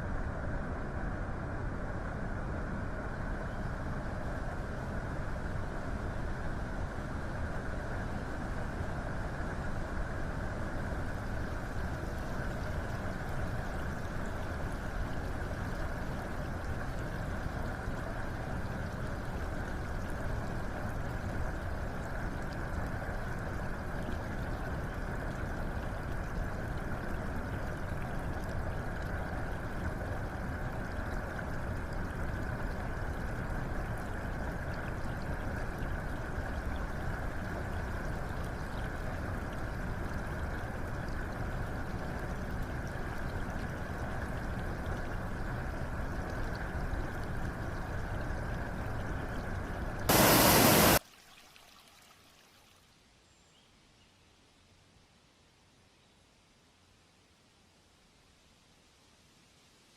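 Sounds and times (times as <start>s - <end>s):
running water rushing: 41.8s - 52.8s.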